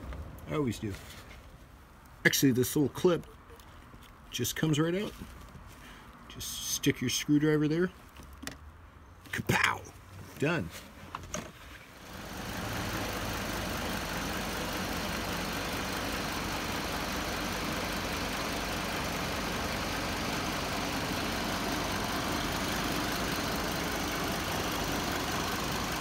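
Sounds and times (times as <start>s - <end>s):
car engine idling: 12.0s - 26.0s.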